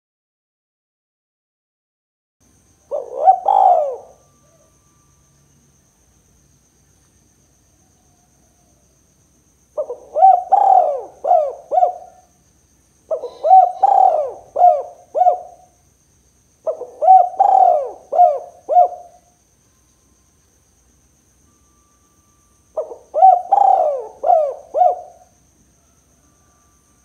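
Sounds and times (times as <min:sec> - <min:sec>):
dove cooing: 0:02.9 - 0:04.7, 0:09.8 - 0:12.3, 0:13.1 - 0:15.8, 0:16.6 - 0:19.3, 0:22.8 - 0:25.4.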